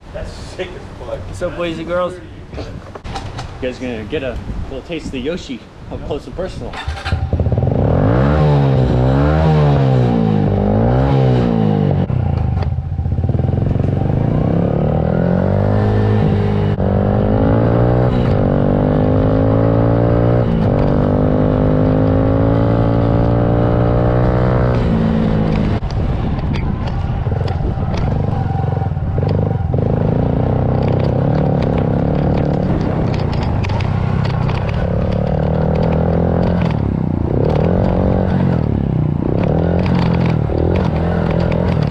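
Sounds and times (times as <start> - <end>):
pit bike engine revving: 6.8 - 25.8, 27.0 - 41.9
chassis clatter and rattle: 25.4 - 41.9.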